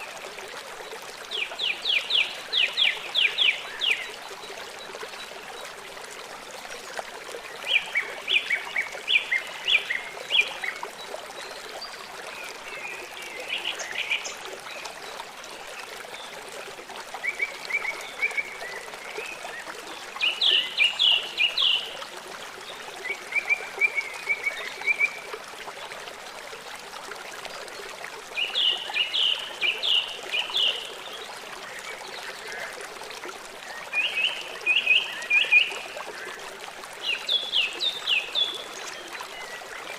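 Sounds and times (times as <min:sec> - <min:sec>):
trickle of running water: 0:00.0 - 0:39.9
songbird singing: 0:19.6 - 0:22.0, 0:28.4 - 0:32.7.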